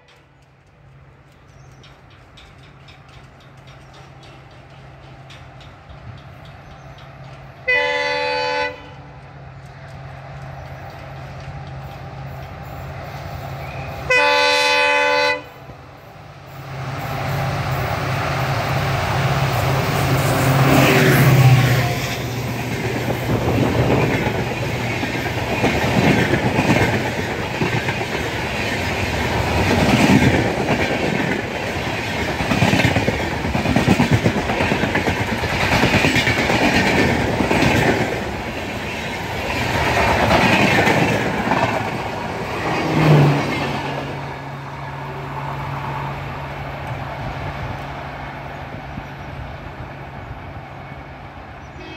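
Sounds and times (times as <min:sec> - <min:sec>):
wheels clickety-clack on rail joints: 0:00.0 - 0:51.4
diesel locomotive engine: 0:00.0 - 0:51.9
train horn blasts: 0:07.6 - 0:09.2, 0:13.6 - 0:15.7.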